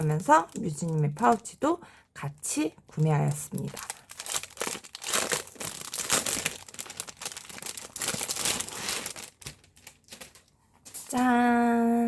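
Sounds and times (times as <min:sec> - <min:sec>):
packaging crinkling: 0:00.0 - 0:01.6, 0:03.0 - 0:11.0.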